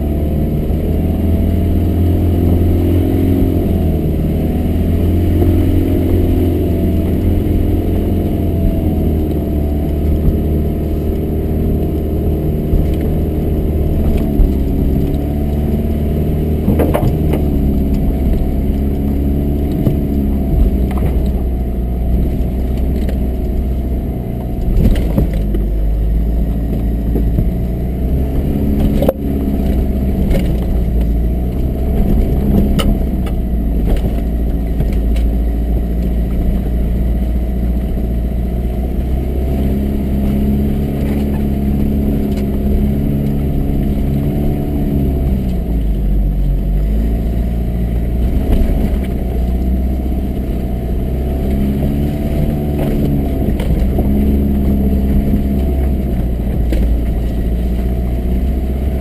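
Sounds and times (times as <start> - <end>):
heavy low rumble: 0.0 - 59.0
truck engine running at low revs: 0.0 - 59.0
knocks and clatter of truck jolting: 16.5 - 18.5.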